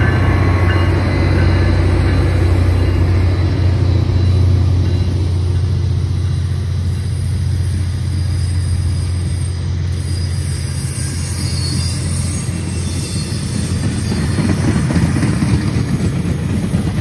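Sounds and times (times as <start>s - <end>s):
train rolling past: 0.0s - 17.0s
train wheel and car rattle: 11.2s - 17.0s.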